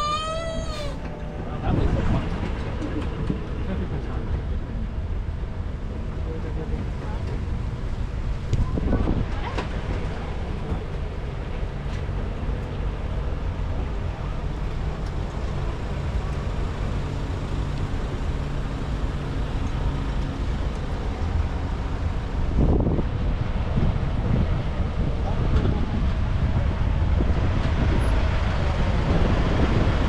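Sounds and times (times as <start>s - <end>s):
road noise: 0.0s - 30.0s
road train engine running: 9.1s - 25.2s
wind on microphone: 22.4s - 30.0s.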